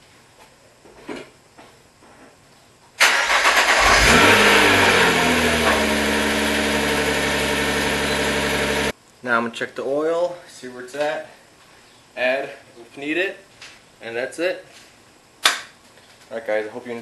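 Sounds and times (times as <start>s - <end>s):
car engine starting and idling: 3.0s - 8.9s.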